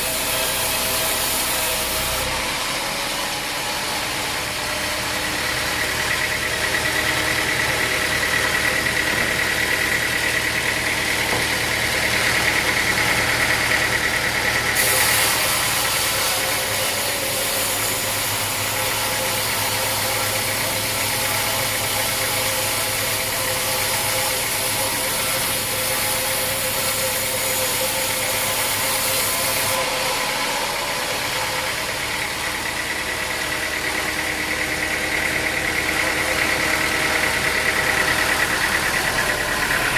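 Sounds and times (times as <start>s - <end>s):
saw cutting through wood: 0.0s - 39.9s
sawmill machinery drone: 0.0s - 39.9s.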